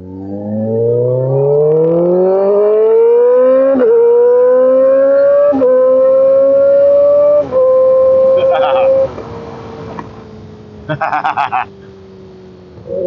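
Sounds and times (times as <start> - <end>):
motorcycle engine accelerating hard: 0.0 - 10.0
quick gear upshifts: 5.1 - 10.2.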